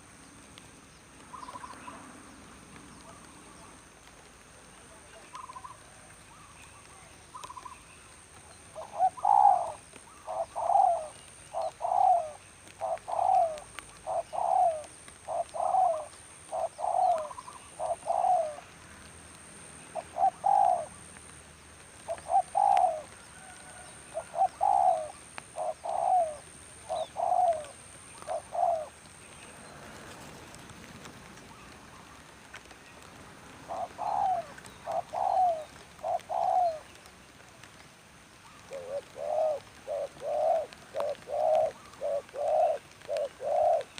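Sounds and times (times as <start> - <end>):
dove cooing: 8.7 - 18.7, 19.9 - 21.0, 22.0 - 29.1, 33.6 - 36.9, 38.5 - 43.9.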